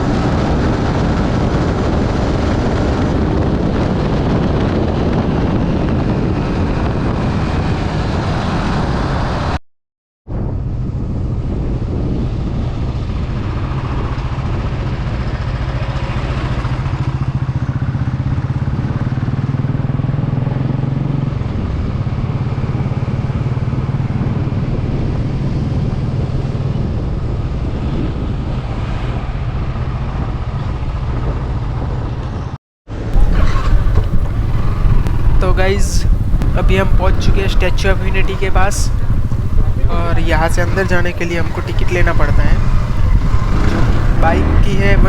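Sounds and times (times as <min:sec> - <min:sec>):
road noise: 0:00.0 - 0:09.6, 0:10.3 - 0:45.0
motorcycle engine running: 0:10.4 - 0:45.0.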